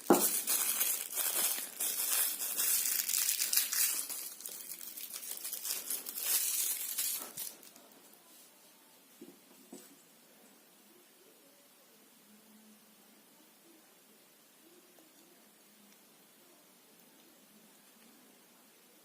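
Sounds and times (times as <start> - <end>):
plastic wrapping crinkling: 0.0 - 7.9.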